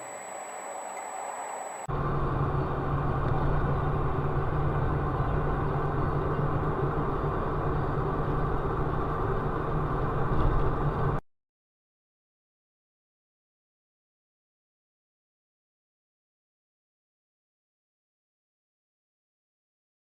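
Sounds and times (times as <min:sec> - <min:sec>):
car engine hum: 0:00.0 - 0:11.2
road noise: 0:00.0 - 0:11.2.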